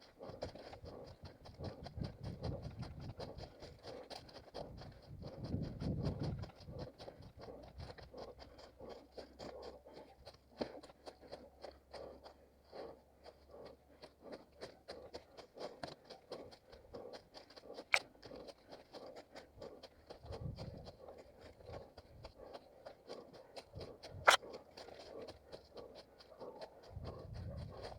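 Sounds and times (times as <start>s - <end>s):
footsteps crunching on rough ground: 8.0s - 27.9s.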